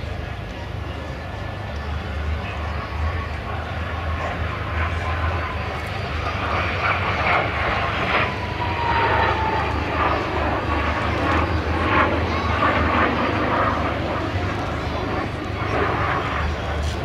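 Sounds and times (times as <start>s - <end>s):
jet engine noise: 0.0s - 17.0s
whine sliding down in pitch: 8.2s - 11.4s.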